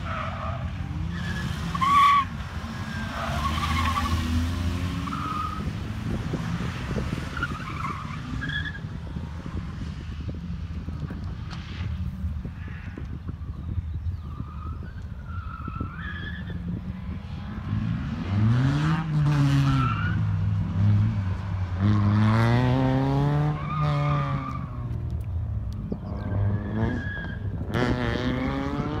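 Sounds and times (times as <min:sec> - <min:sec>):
tyre squeals: 0:26.1 - 0:27.6
car engine revving hard: 0:27.7 - 0:29.0.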